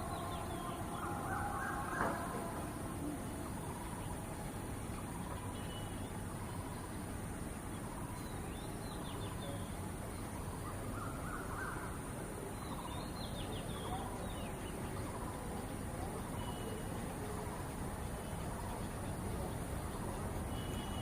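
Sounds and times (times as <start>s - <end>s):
crows calling: 0.0s - 2.7s, 10.9s - 12.0s
steady background noise: 0.0s - 21.0s.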